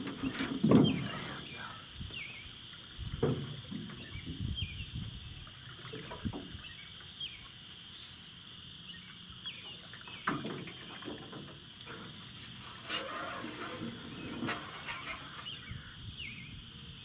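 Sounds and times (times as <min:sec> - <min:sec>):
steady high hiss: 0:06.6 - 0:10.0.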